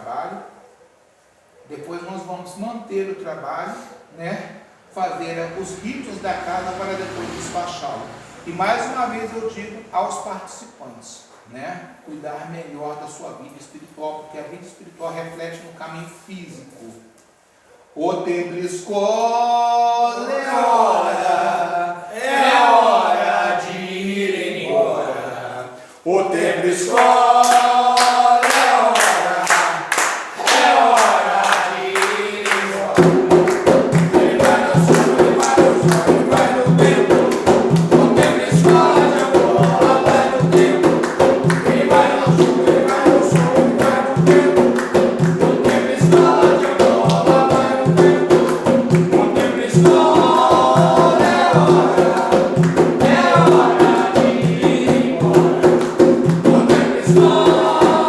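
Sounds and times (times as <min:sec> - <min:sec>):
group singing devotional song: 0:05.0 - 0:10.4, 0:19.3 - 0:58.0
steady percussion beat: 0:26.9 - 0:58.0.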